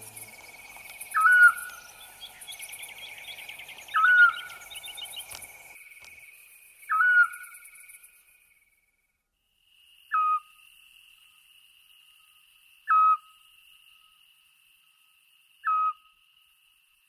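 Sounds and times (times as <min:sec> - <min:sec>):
owl whistled calls: 0:01.1 - 0:02.1, 0:03.9 - 0:05.1, 0:06.9 - 0:07.5, 0:10.1 - 0:10.5, 0:12.9 - 0:13.3, 0:15.6 - 0:16.0.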